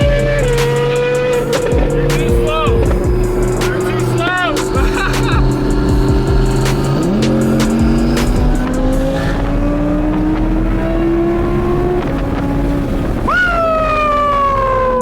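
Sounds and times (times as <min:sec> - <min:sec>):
sharp tone sliding downward: 0:00.0 - 0:11.2
sports car engine accelerating: 0:00.0 - 0:15.0.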